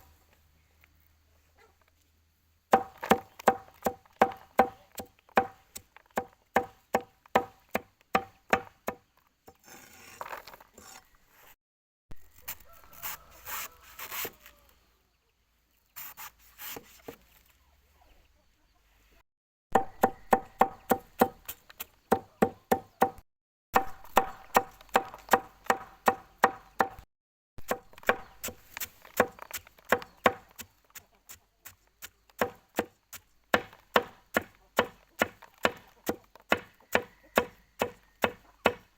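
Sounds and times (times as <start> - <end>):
knife chopping on wooden board: 2.7 - 9.0, 19.8 - 23.2, 23.8 - 27.0, 27.6 - 30.7, 31.3 - 38.9
soft rubbing and scraping: 9.5 - 11.6.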